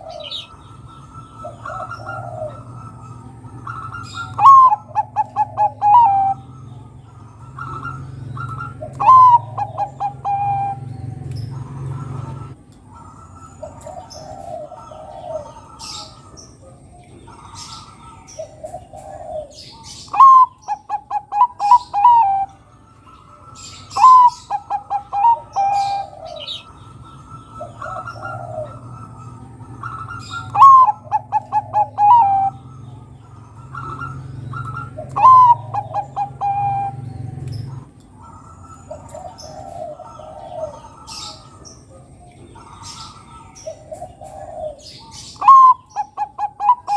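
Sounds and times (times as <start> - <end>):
dove cooing loudly: 0.0 - 46.9
quieter dove cooing: 0.0 - 46.9.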